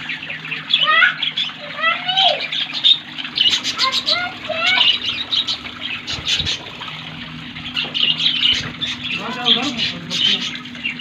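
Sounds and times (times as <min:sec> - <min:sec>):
budgerigars chirping: 0:07.6 - 0:11.0.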